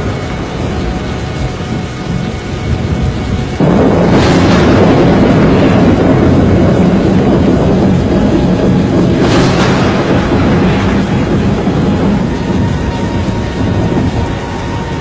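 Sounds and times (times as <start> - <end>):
dense storm rumbling: 0.0 - 15.0
rain: 0.0 - 15.0
wind: 0.0 - 15.0.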